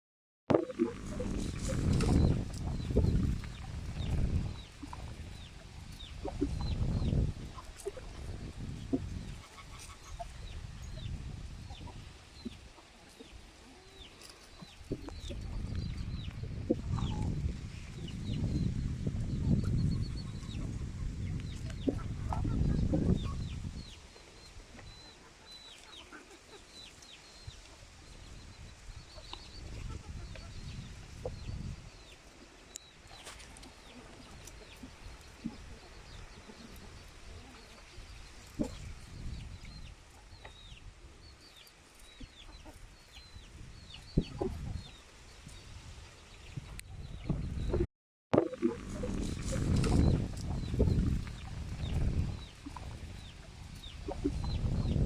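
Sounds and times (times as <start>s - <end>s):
hens clucking: 6.1s - 17.4s, 19.5s - 24.0s, 29.2s - 31.6s.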